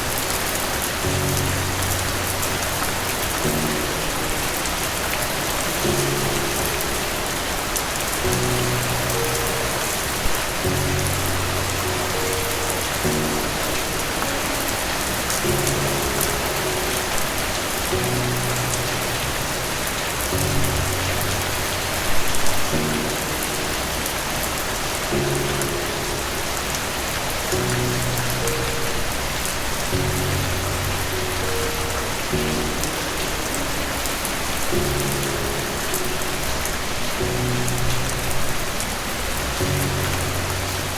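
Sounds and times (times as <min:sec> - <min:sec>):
soft slow low music: 0:00.0 - 0:40.9
steady rain falling: 0:00.0 - 0:40.9.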